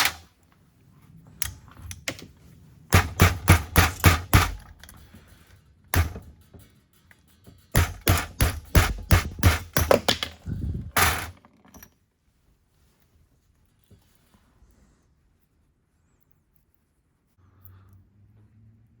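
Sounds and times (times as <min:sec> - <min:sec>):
hammer striking metal: 0:02.9 - 0:04.7, 0:06.0 - 0:06.3, 0:07.7 - 0:10.2.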